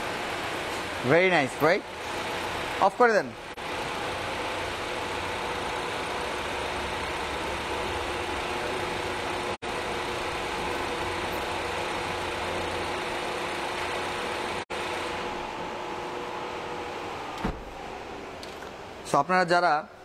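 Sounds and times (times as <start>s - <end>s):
car engine idling: 3.6s - 15.0s.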